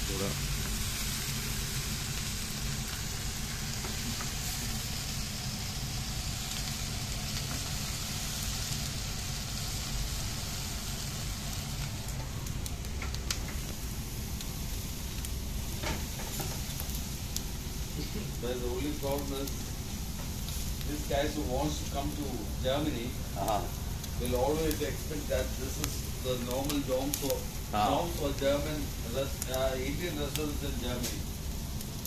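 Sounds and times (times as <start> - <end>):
food sizzling: 0.0 - 32.0
sharp pops and crackles: 11.3 - 22.3, 23.4 - 32.0.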